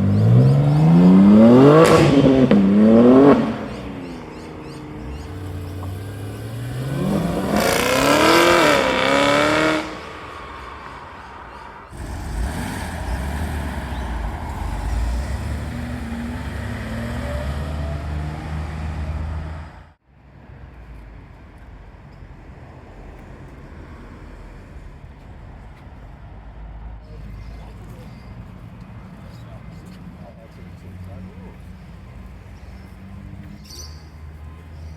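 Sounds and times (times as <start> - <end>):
car engine revving and accelerating: 0.0 - 20.0
car engine rumbling: 0.0 - 20.0.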